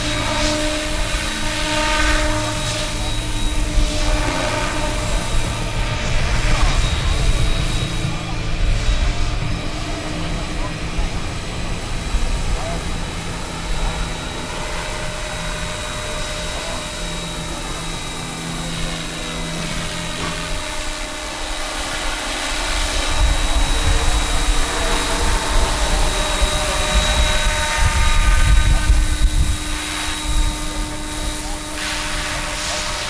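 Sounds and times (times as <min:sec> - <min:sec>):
low rumble: 0:00.0 - 0:20.9
model helicopter rotor whine: 0:00.0 - 0:33.0.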